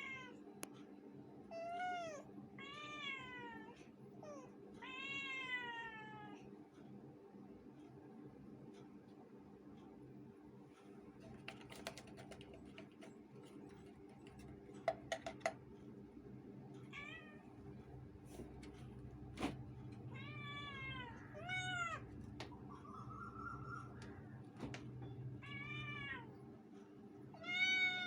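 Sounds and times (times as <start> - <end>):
cats meowing: 16.9 - 17.4, 20.0 - 22.2, 25.1 - 26.4, 27.4 - 28.0.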